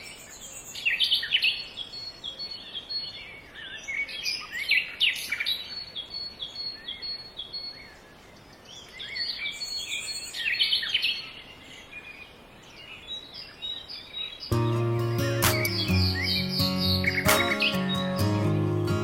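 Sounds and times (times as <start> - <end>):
small birds chirping: 0.0 - 19.0
whistled bird notes: 13.4 - 19.0.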